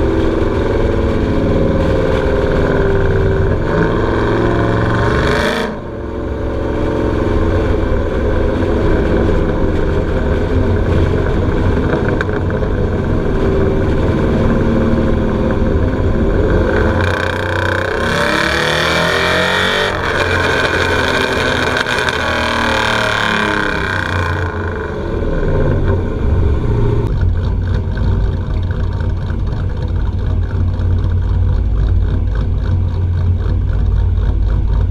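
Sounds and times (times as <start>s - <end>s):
vee eight engine uneven idle: 19.9s - 34.9s.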